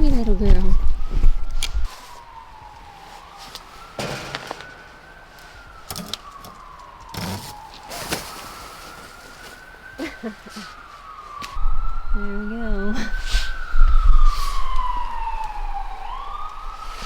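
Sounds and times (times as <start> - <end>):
siren wailing: 0.0 - 17.0
scraping and rustling: 3.0 - 9.9.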